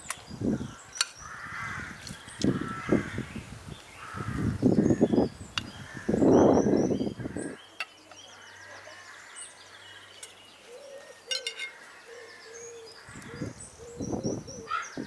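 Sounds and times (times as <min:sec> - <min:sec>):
small birds chirping: 0:00.0 - 0:15.0
crows cawing: 0:01.2 - 0:03.3, 0:04.0 - 0:05.2, 0:05.8 - 0:06.3, 0:11.6 - 0:13.4, 0:14.7 - 0:14.9.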